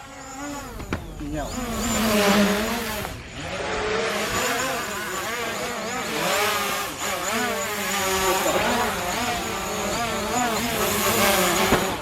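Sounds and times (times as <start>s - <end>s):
video game engines revving: 0.0s - 12.0s.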